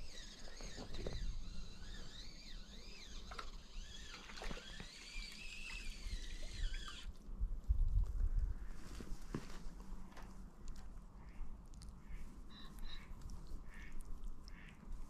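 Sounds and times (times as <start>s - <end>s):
birds singing: 12.5s - 13.1s.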